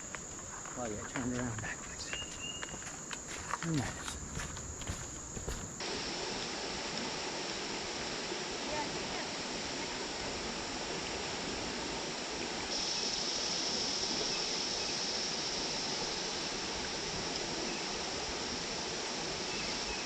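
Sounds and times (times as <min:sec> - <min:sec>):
high hiss: 0:00.0 - 0:20.0
river water rushing: 0:05.4 - 0:20.0.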